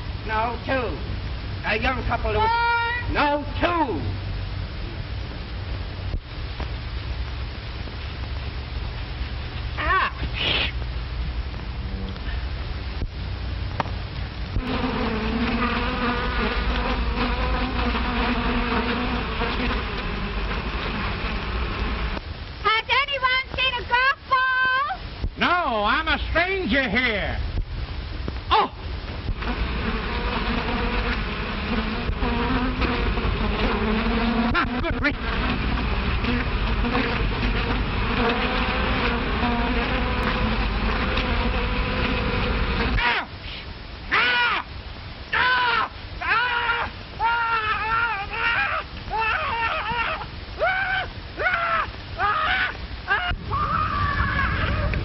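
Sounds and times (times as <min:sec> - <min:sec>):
film soundtrack hiss and crackle: 0:00.0 - 0:55.0
bee buzzing: 0:14.5 - 0:22.2, 0:29.2 - 0:43.2.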